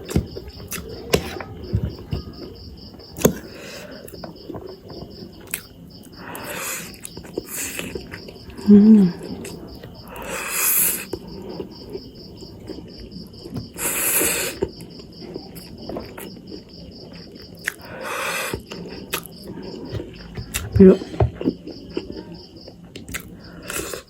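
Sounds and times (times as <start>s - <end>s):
crickets chirping: 0.0s - 24.0s
person humming: 8.6s - 9.4s.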